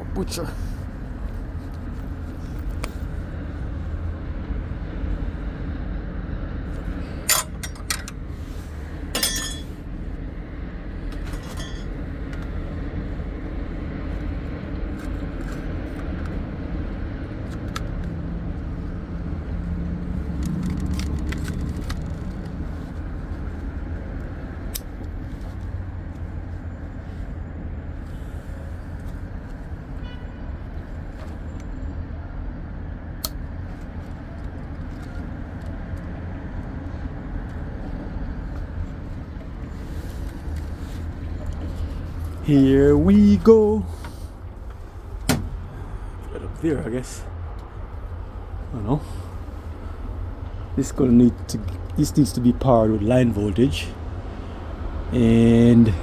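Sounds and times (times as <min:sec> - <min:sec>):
low machinery rumble: 0:00.0 - 0:56.0
hand tools clinking on metal: 0:07.2 - 0:08.2, 0:09.2 - 0:09.8, 0:11.3 - 0:12.0.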